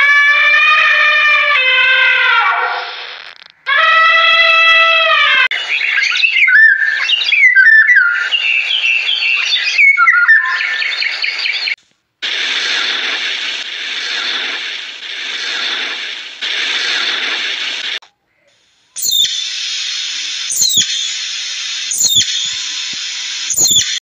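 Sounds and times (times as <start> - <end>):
songbird singing: 5.5 - 11.8, 18.1 - 19.6, 20.4 - 21.3, 21.9 - 24.0
steady hiss: 11.8 - 24.0.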